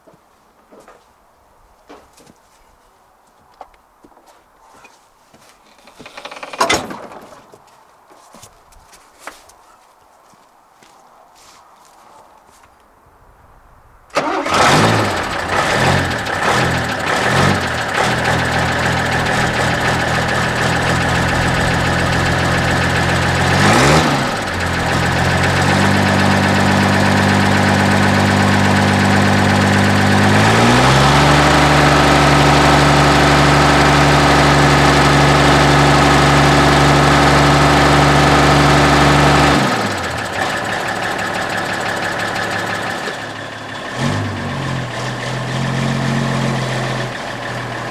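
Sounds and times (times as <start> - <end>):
diesel truck engine revving: 14.2 - 47.9.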